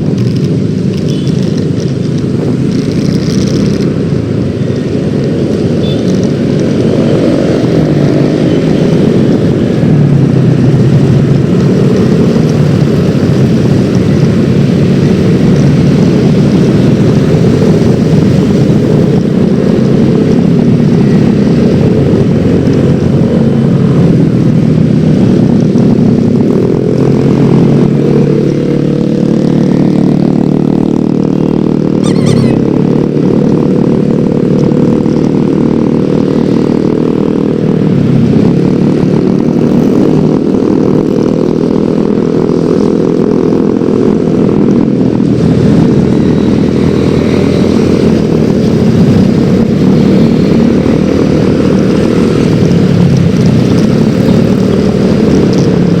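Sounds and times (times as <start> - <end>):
scooter engine running: 30.5 - 36.3.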